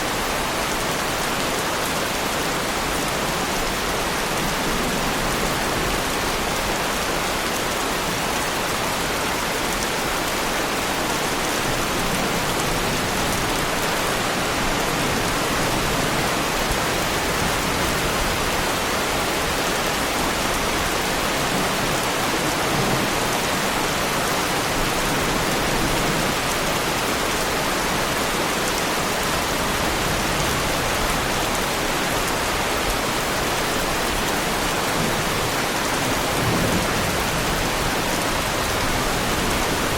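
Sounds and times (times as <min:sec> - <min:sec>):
heavy rain on a car: 0:00.1 - 0:39.9.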